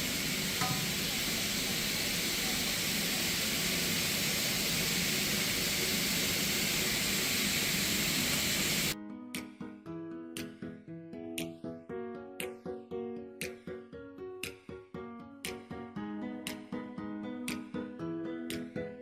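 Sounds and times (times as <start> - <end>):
piano music: 9.0 - 19.0.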